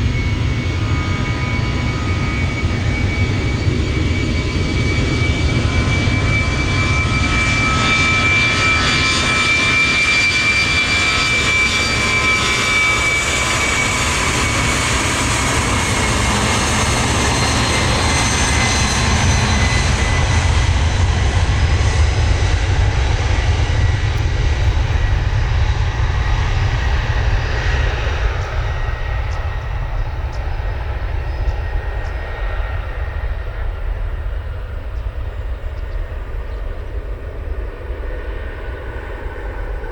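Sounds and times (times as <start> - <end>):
jet engine rumble: 0.0 - 39.9
jet engine whine: 0.0 - 39.9.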